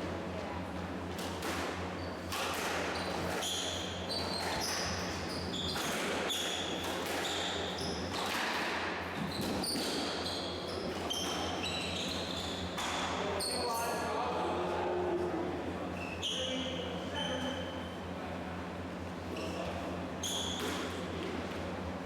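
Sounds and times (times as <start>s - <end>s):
shoes squeaking on floor: 3.0s - 8.4s, 9.1s - 14.1s, 19.3s - 21.0s
squash ball struck by rackets: 5.7s - 10.2s.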